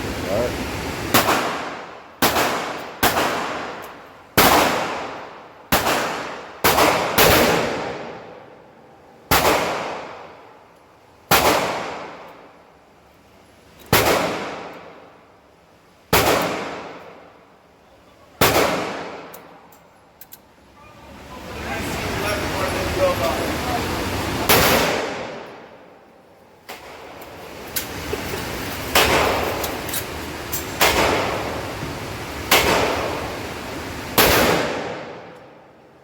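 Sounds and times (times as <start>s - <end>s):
handgun shots echoing: 28.9s - 29.9s, 30.7s - 31.6s.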